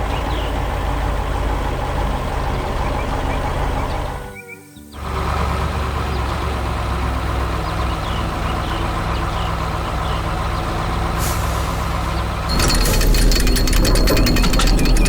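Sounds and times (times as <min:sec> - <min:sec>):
diesel machinery engine humming: 0:00.0 - 0:04.3, 0:05.0 - 0:15.0
rapid rattling: 0:11.4 - 0:15.0.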